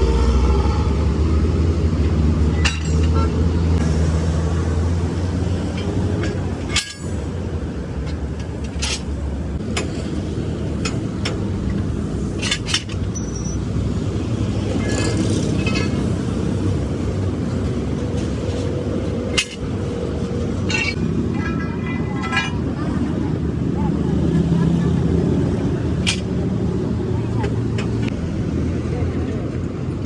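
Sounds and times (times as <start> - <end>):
road traffic rumble: 0.0 - 30.0
metallic clinks and knocks: 2.6 - 3.3.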